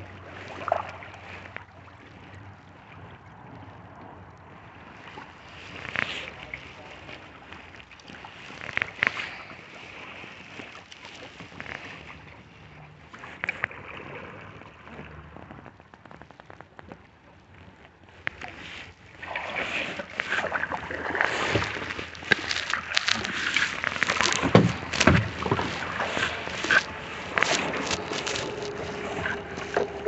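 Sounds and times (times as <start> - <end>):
water sloshing around a kayak: 0.0 - 30.0
paddle knocking on hull: 20.4 - 30.0.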